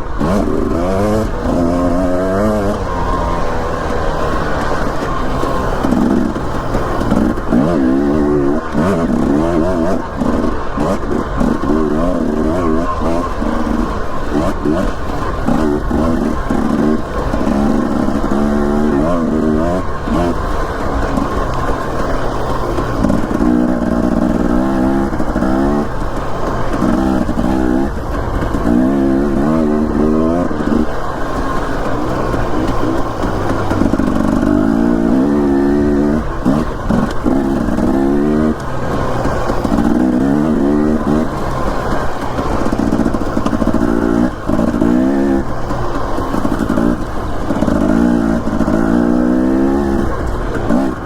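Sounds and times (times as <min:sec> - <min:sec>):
dirt bike engine revving: 0:00.0 - 0:51.0.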